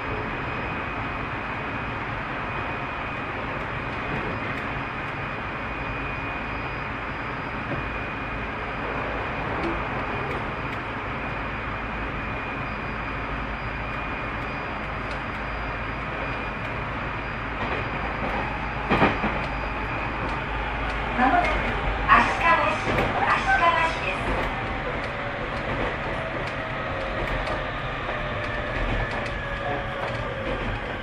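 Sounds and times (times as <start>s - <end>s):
train wheels rumbling: 0.0s - 31.0s
light ticks: 10.3s - 10.9s.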